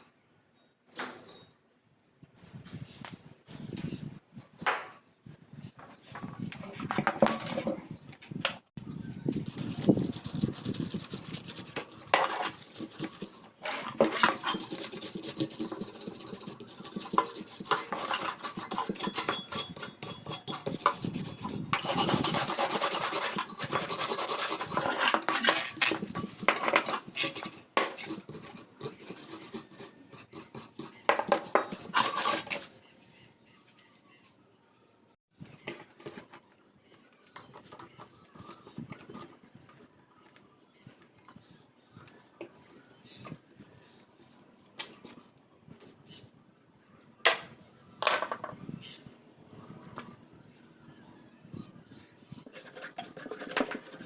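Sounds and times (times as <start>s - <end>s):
rasping scraping hand work: 9.4s - 32.7s, 52.5s - 54.0s.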